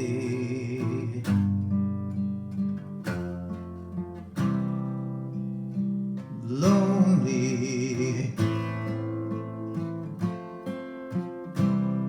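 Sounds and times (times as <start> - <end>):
person singing: 0.0 - 1.5, 6.3 - 9.0
acoustic guitar strumming chords: 0.0 - 12.0.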